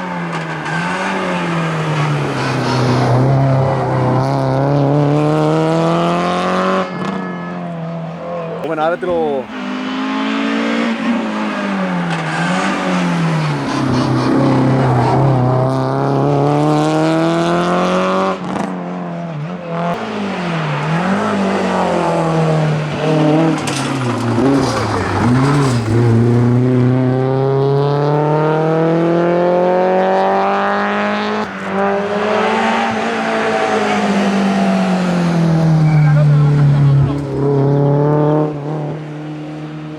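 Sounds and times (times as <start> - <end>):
rally car engine revving: 0.0 - 39.9.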